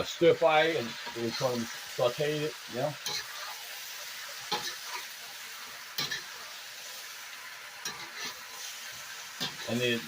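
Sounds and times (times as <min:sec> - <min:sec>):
food sizzling in a hot pan: 0:00.0 - 0:10.0
spatula scraping a pan: 0:00.8 - 0:01.9, 0:03.0 - 0:05.1, 0:05.8 - 0:06.5, 0:07.8 - 0:10.0.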